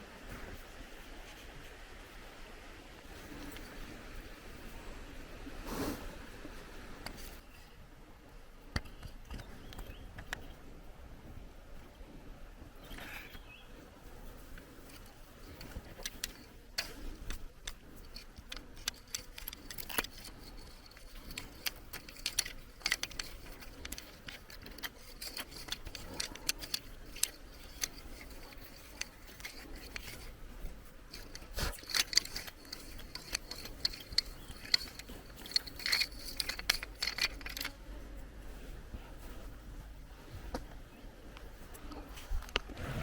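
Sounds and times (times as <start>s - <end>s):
small objects clicking and rattling: 14.6s - 37.8s.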